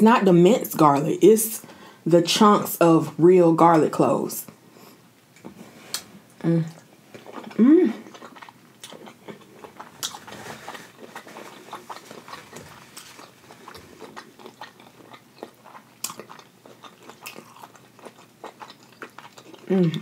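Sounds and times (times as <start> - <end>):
close chewing with wet smacks: 6.8 - 20.0.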